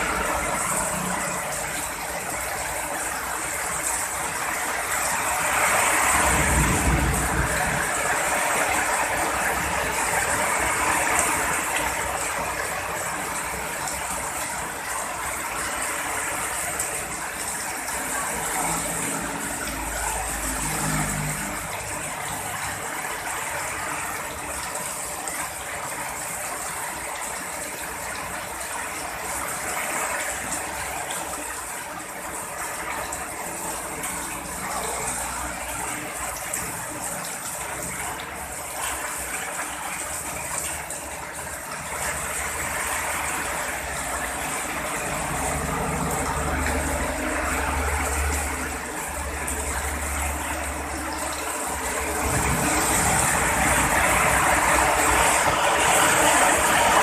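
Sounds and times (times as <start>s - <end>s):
heavy rain pouring: 0.0s - 57.0s
low rumble of thunder: 6.2s - 8.0s.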